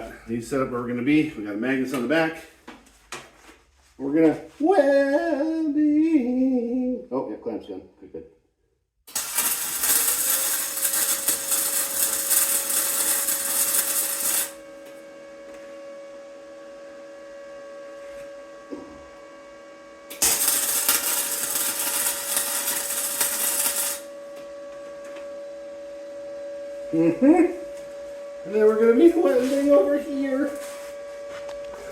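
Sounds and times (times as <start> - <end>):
arc welder crackling: 9.1 - 14.7, 20.1 - 24.5
electrical hum: 9.1 - 31.9.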